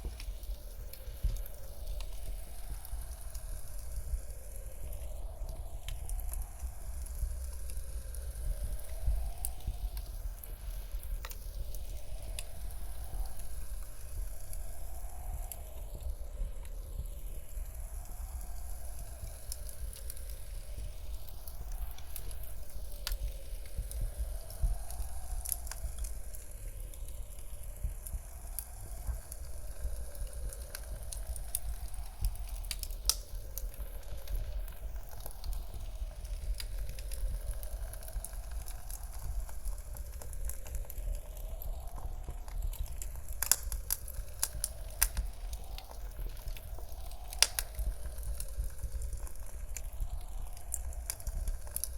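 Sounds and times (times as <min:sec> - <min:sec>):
blizzard wind rumbling: 0:00.0 - 0:51.9
wood fire crackling: 0:00.0 - 0:51.9.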